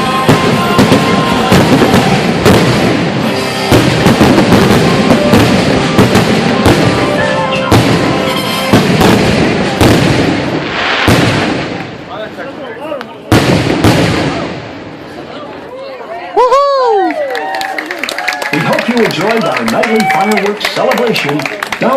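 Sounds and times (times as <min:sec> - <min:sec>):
music: 0:00.0 - 0:09.9
fireworks bursting: 0:00.0 - 0:15.6.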